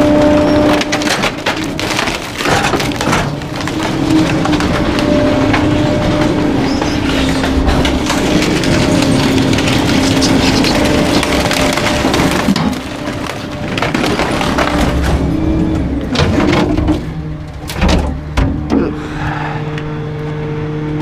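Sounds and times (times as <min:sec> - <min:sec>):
waste crushing and snapping: 0:00.0 - 0:16.2
hydraulic hum: 0:00.0 - 0:21.0.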